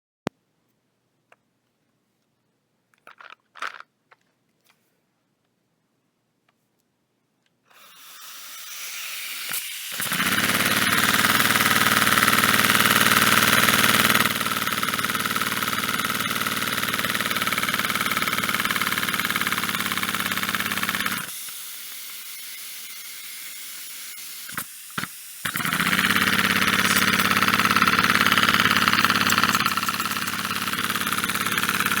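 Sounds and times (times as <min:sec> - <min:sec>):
small clicks: 0:02.9 - 0:04.8
pneumatic engine running hum: 0:20.4 - 0:32.0.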